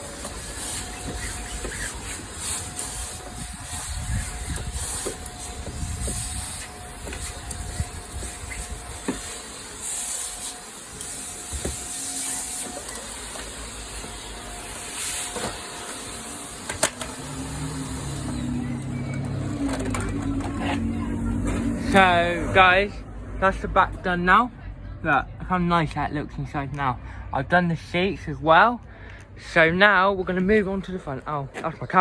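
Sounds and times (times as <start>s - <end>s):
vacuum cleaner running: 0.0s - 22.9s.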